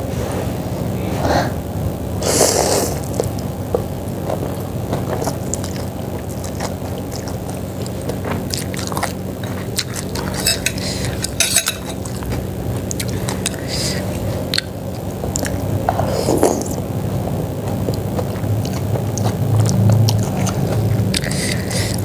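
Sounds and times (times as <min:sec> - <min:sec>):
steady low hum: 0:00.0 - 0:22.0
chewing and biting: 0:03.1 - 0:16.8, 0:17.6 - 0:22.0.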